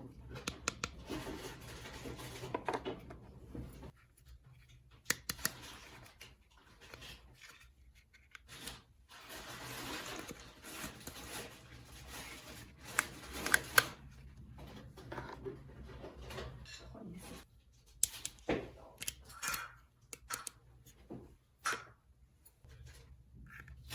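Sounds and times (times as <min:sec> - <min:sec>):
rustling of toy pieces: 0:05.5 - 0:14.1.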